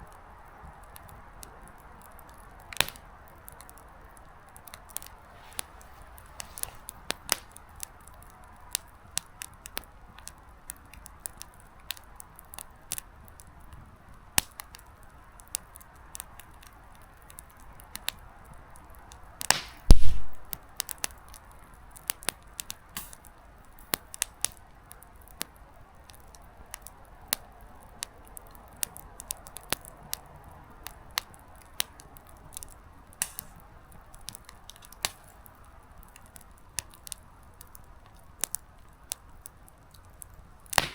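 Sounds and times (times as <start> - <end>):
campfire crackling and popping: 0.0 - 40.9
faint hiss: 4.2 - 8.0, 33.1 - 34.1.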